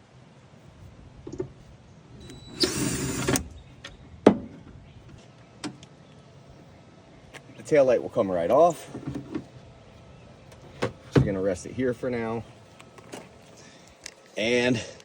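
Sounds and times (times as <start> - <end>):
cordless drill spinning: 2.3 - 3.4.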